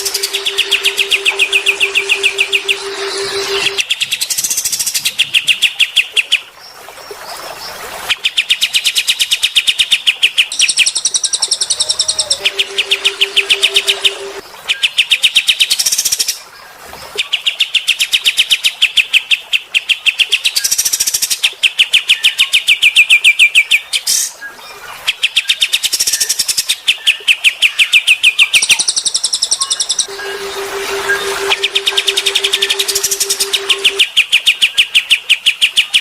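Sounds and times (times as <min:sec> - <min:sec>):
low steady hum: 0:00.0 - 0:03.8, 0:11.8 - 0:14.4, 0:30.0 - 0:34.0.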